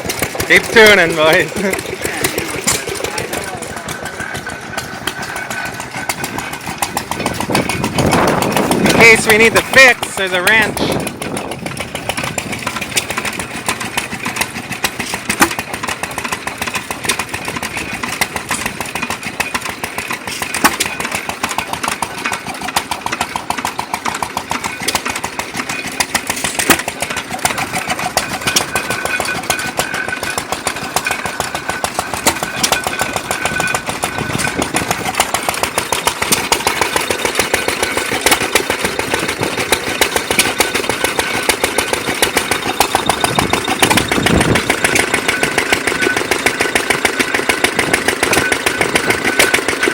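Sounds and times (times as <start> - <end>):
gas engines exhaust pops: 14.9 - 16.0, 20.2 - 22.0, 24.0 - 31.3.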